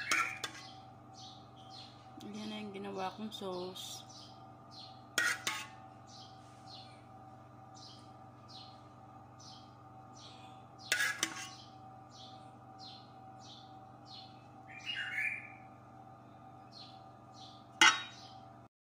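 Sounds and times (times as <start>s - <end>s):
spoon clattering on baking tray: 0.0s - 0.7s, 5.2s - 5.8s, 10.9s - 11.6s, 17.8s - 18.3s
bird chirping: 0.0s - 2.0s, 4.0s - 5.0s, 6.1s - 7.0s, 7.7s - 8.8s, 9.4s - 10.9s, 11.5s - 15.7s, 16.6s - 18.4s
steady background hum: 0.0s - 18.7s.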